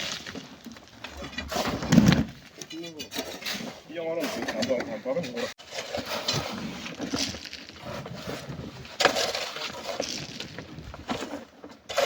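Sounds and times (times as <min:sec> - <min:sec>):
rock and sand crumbling: 0:00.0 - 0:03.1, 0:05.6 - 0:12.0
rock knocks and scraping: 0:00.0 - 0:03.7, 0:04.4 - 0:12.0.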